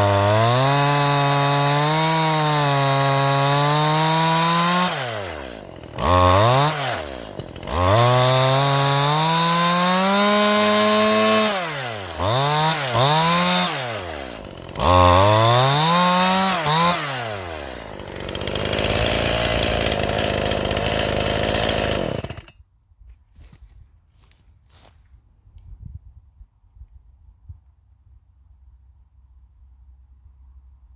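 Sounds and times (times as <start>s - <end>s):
chainsaw revving and idling: 0.0s - 22.6s.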